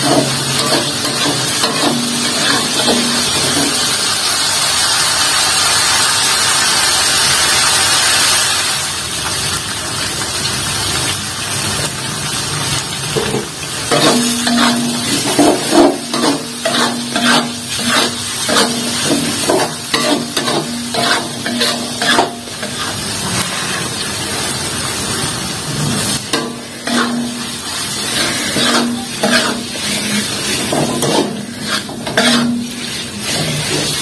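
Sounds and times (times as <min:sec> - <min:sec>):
spatula scraping a metal wok: 0:00.0 - 0:04.1, 0:13.2 - 0:24.0, 0:25.8 - 0:34.0
paste sizzling in a wok: 0:00.0 - 0:34.0.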